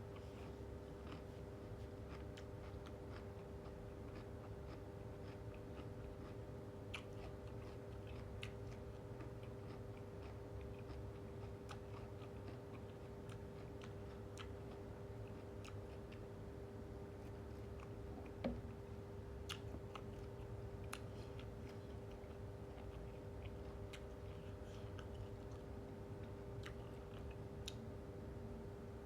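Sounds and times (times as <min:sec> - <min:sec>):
person chewing food: 0:00.0 - 0:27.9
steady hum: 0:00.0 - 0:29.0.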